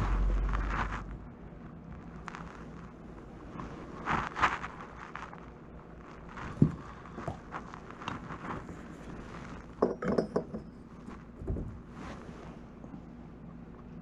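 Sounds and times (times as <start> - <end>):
knocks and clatter: 9.7 - 11.9.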